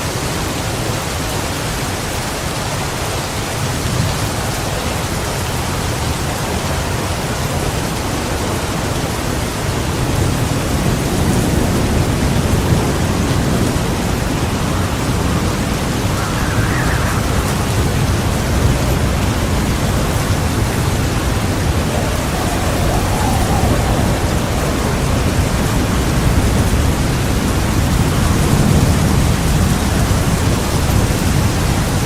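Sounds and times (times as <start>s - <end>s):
heavy rain pouring: 0.0s - 32.0s
low rumble of thunder: 10.1s - 32.0s.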